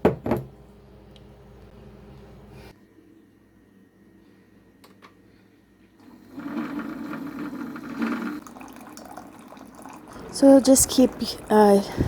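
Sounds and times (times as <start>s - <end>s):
liquid pouring: 6.4s - 12.0s.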